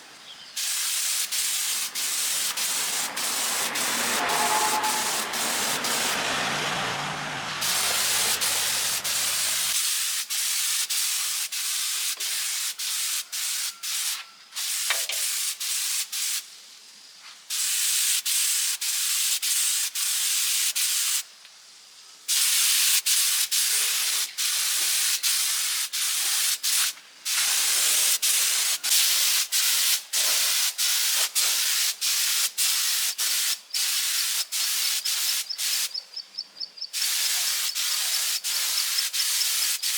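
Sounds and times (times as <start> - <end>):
air gun hissing bursts: 0.6 - 6.8, 7.5 - 16.5, 22.3 - 35.9, 37.0 - 39.9.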